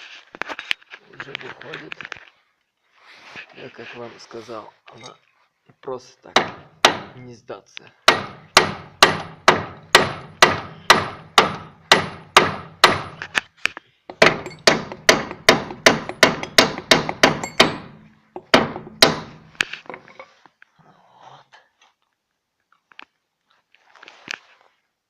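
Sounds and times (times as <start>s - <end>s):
hammer striking metal: 8.1s - 13.2s, 14.1s - 19.5s.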